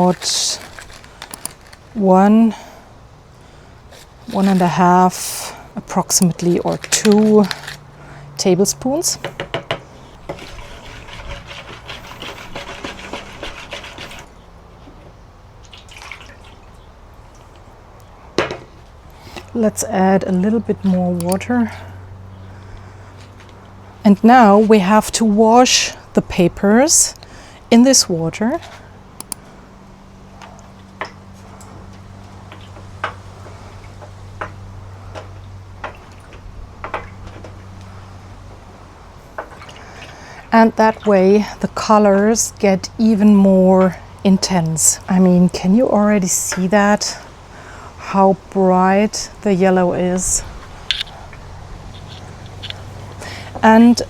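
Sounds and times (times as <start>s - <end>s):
small clicks: 0.0s - 2.0s, 50.9s - 51.2s, 51.9s - 53.7s
water splashing in tub: 15.6s - 16.8s
water trickling: 15.6s - 17.6s.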